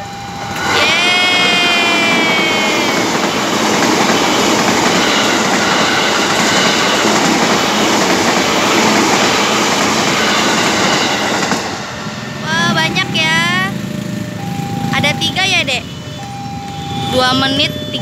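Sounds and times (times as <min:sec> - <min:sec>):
train wheels on rails: 0:00.0 - 0:15.6.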